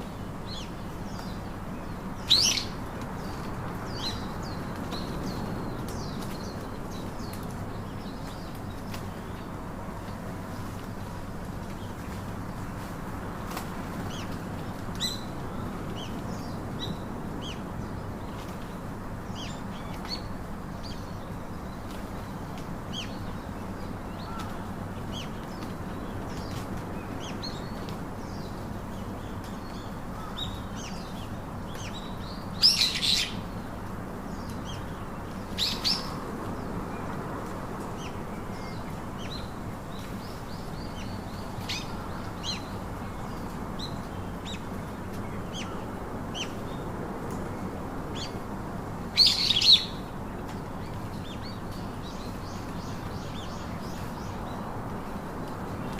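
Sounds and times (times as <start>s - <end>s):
birds chirping: 0.0s - 12.8s, 13.4s - 37.3s, 48.1s - 55.9s.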